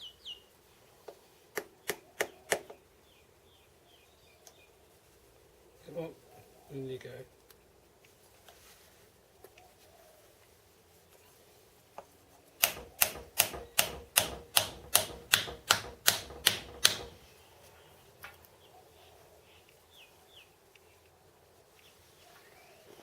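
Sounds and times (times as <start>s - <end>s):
hammer tapping a pin: 12.6s - 17.2s.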